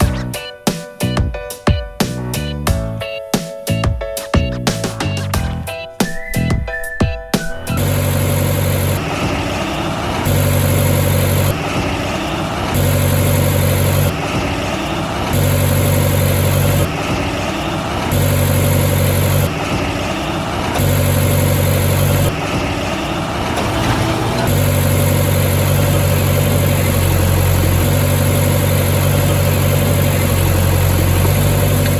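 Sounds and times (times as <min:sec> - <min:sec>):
heavy vehicle engine idling: 0:07.5 - 0:31.9.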